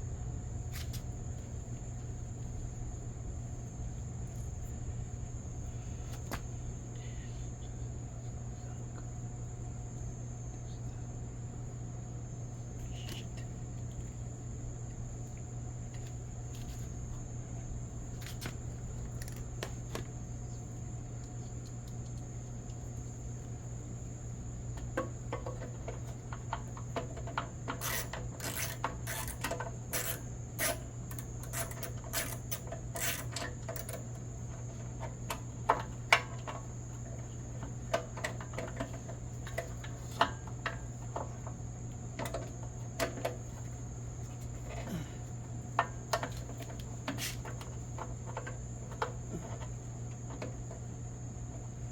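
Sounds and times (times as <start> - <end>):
steady low hum: 0.0 - 51.9
metal tools clinking: 27.8 - 34.0.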